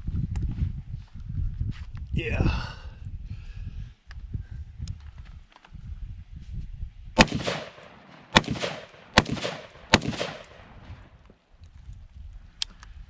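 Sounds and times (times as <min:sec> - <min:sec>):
rifle shots with echo: 0:07.2 - 0:11.1.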